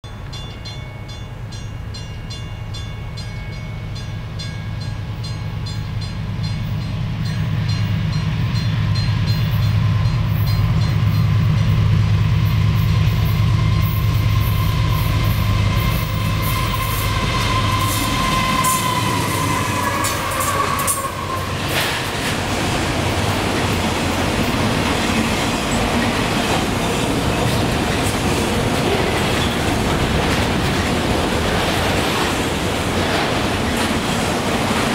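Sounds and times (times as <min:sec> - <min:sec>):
train wheel and rail noise: 0:00.0 - 0:34.9
diesel locomotive engine rumble: 0:00.1 - 0:34.9
high ringing tone: 0:13.3 - 0:21.4.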